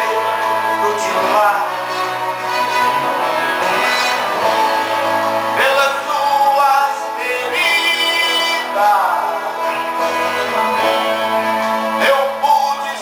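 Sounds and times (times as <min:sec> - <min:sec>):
man singing gospel song: 0:00.0 - 0:02.2, 0:05.5 - 0:10.7, 0:11.9 - 0:13.0
guitar accompaniment: 0:00.0 - 0:13.0.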